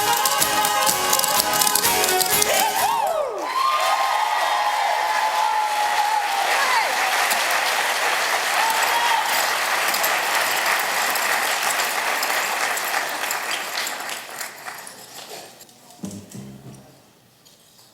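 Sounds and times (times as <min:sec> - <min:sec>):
voices cheering: 0:00.0 - 0:13.2
audience applauding: 0:00.0 - 0:15.2.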